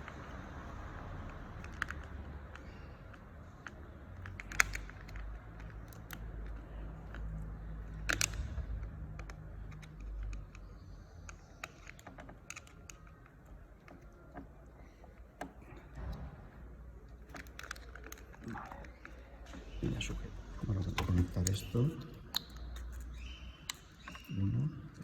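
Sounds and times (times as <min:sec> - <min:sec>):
small parts clicking and tapping: 0:00.0 - 0:25.0.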